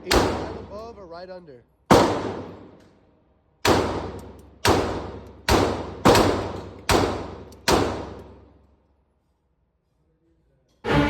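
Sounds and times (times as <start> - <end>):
echoing gunshots: 0.0 - 0.9, 1.9 - 2.8, 3.6 - 8.6.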